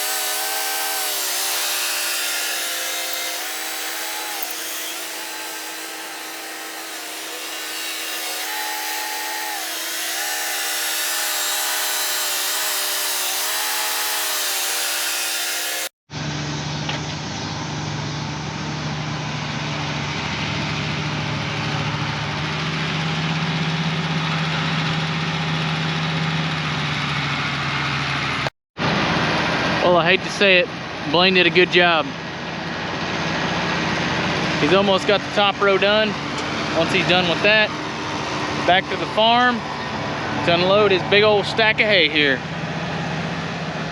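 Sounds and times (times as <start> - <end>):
whining engine: 0.0 - 43.9
deep engine running: 16.1 - 43.9.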